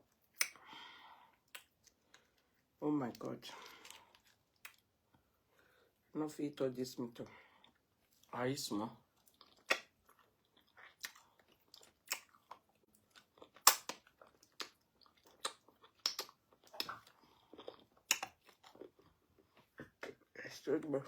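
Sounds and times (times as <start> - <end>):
wet chewing and smacking: 1.3 - 5.2, 9.1 - 20.3.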